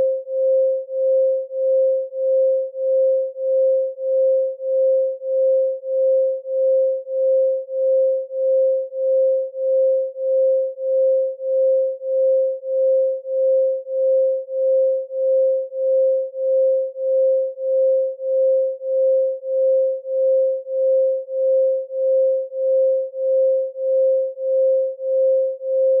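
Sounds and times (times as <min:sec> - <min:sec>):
pulsing sine tone: 0:00.0 - 0:26.0.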